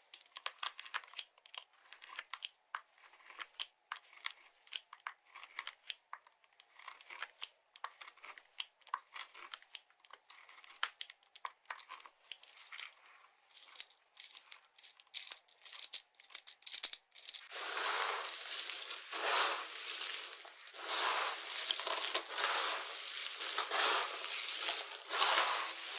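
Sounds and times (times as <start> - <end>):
dry soap crackling snaps: 17.4 - 25.9
soap crumbling crunch: 17.4 - 25.9.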